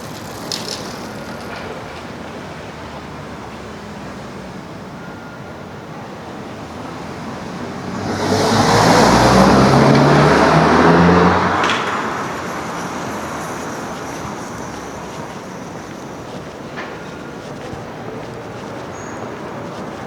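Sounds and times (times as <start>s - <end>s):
vehicle passing by: 7.3s - 20.0s.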